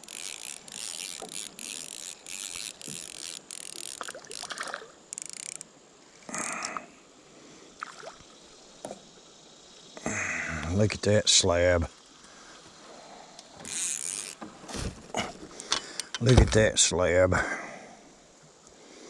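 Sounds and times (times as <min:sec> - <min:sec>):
fishing reel ratcheting: 0:00.0 - 0:05.7, 0:13.6 - 0:14.5.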